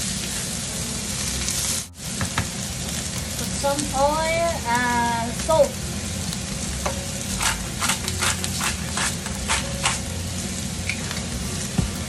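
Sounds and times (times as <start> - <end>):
spice grinder grinding: 7.2 - 10.2.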